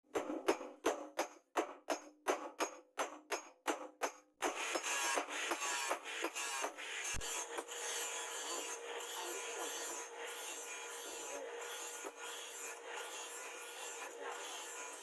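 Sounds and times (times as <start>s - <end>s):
file rasping on steel: 4.4s - 15.0s.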